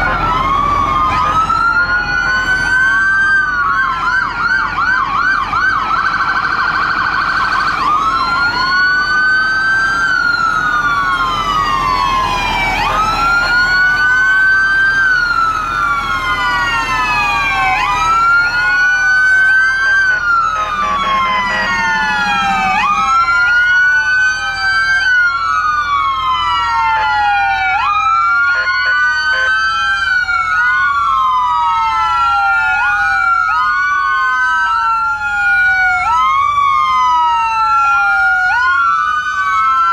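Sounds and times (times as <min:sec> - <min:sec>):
low engine rumble: 0:00.0 - 0:26.5
fire truck sirens wailing: 0:00.0 - 0:39.9.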